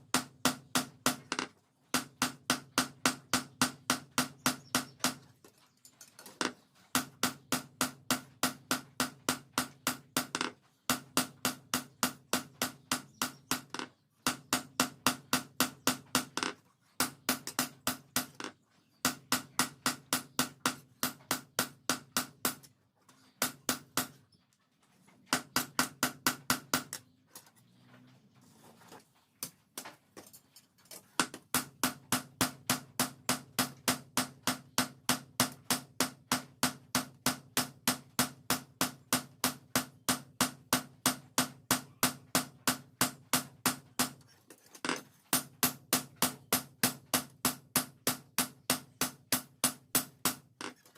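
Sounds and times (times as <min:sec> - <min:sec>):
hammer striking steel on anvil: 0:07.0 - 0:22.7, 0:31.2 - 0:44.2, 0:44.9 - 0:50.8.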